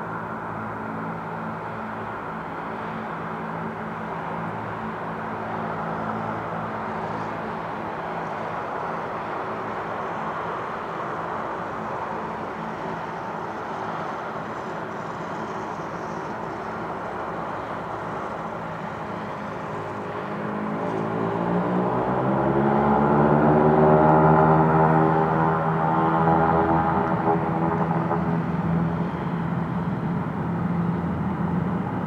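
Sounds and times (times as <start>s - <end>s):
propeller engine drone: 0.0s - 32.0s.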